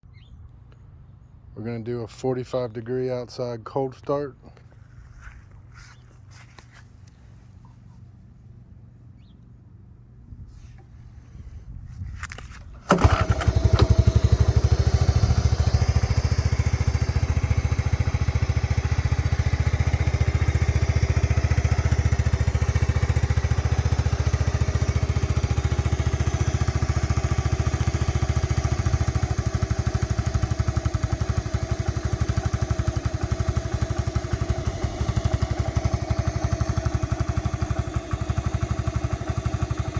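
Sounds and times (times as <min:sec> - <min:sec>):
small engine starting and idling: 0:12.2 - 0:39.9.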